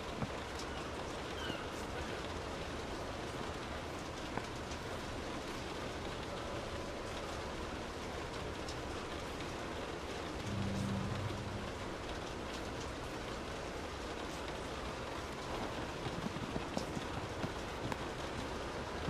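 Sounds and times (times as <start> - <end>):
steady rain falling: 0.0 - 19.0
low rumble: 10.4 - 12.3.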